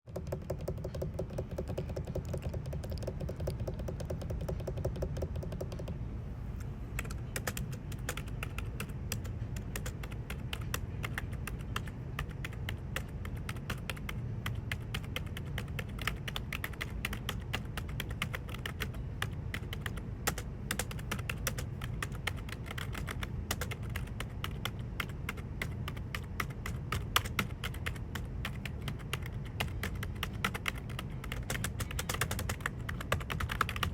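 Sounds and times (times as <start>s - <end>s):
fast typing on keyboard: 0.1s - 6.0s, 7.0s - 33.9s.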